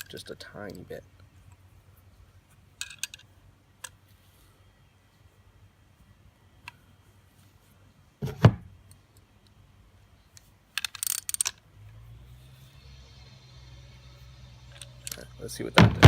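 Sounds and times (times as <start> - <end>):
low steady hum: 0.0 - 16.0
heavy knock: 15.8 - 16.0.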